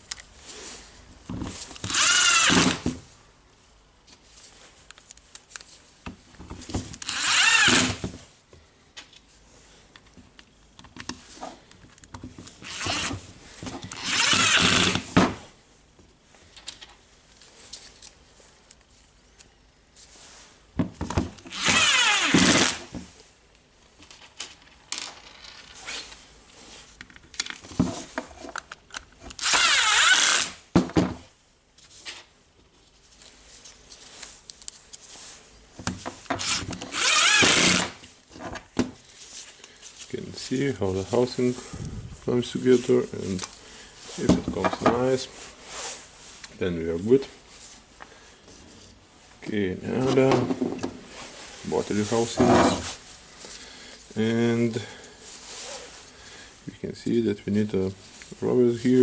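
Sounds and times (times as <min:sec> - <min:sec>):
quiet handling noises: 0:31.7 - 0:36.8, 0:38.0 - 0:59.0.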